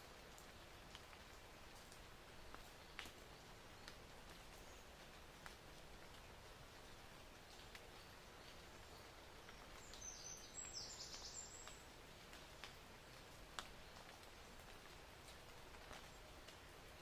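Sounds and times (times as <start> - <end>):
faint outdoor hiss: 0.0 - 17.0
soft ticks: 13.5 - 16.6.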